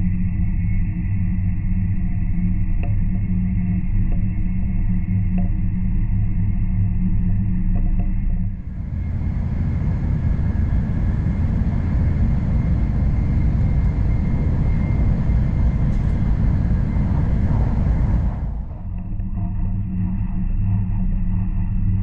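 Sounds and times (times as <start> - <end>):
train rumbling at speed: 8.6 - 19.2.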